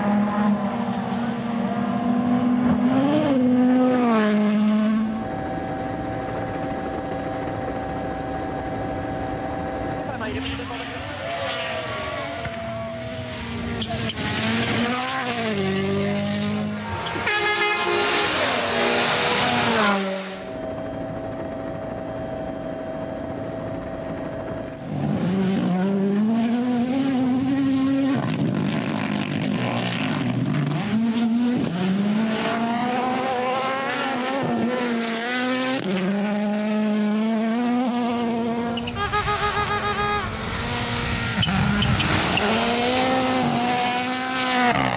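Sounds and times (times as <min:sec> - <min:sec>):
rally car engines revving: 0:00.0 - 0:44.9.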